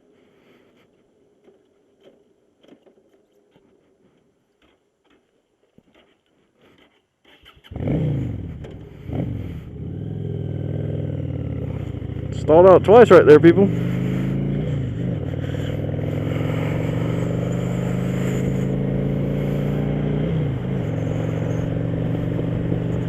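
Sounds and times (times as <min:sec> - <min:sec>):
motorcycle engine starting and revving: 0:07.2 - 0:23.0.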